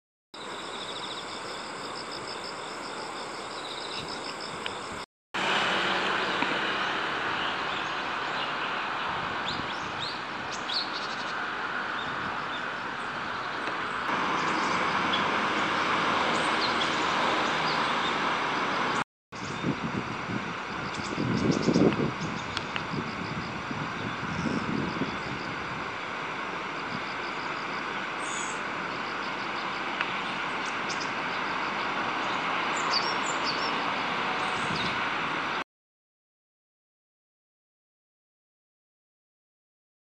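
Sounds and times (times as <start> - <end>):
outdoor background hiss: 0.4 - 16.3
small birds chirping: 9.4 - 11.4, 28.2 - 35.0.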